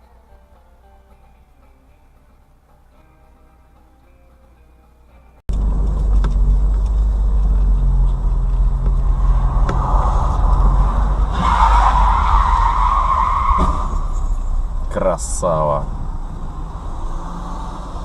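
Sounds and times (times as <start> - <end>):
car engine and road rumble: 5.5 - 18.0.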